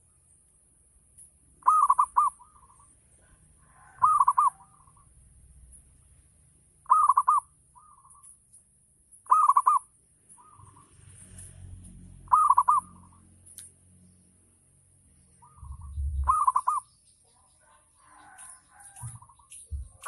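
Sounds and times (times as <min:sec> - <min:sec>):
dove cooing: 0:01.6 - 0:05.0, 0:06.8 - 0:08.2, 0:09.3 - 0:10.8, 0:12.3 - 0:13.2, 0:15.4 - 0:16.9.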